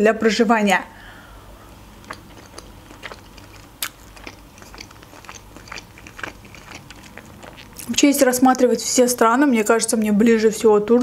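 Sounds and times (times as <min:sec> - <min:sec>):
wet chewing mouth clicks: 0:01.9 - 0:08.8.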